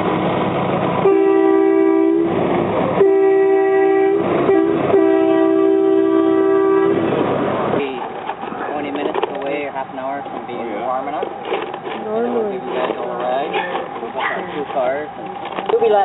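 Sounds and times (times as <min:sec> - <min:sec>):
steam train whistle: 0:01.0 - 0:02.4, 0:03.0 - 0:07.0.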